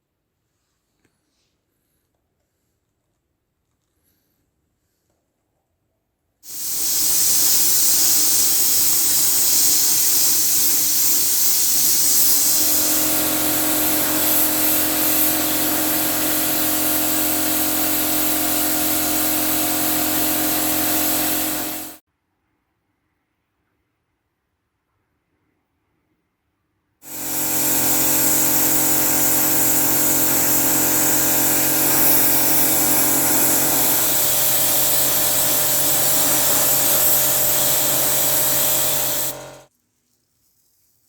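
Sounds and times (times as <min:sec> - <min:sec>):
spray paint hissing: 0:06.4 - 0:22.0, 0:27.0 - 0:39.7
steady multi-tone hum: 0:06.5 - 0:22.0, 0:27.0 - 0:39.7.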